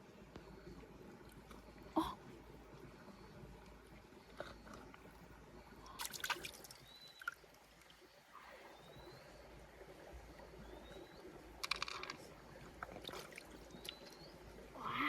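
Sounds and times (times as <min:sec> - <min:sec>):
faint trickling water: 0:00.0 - 0:15.0.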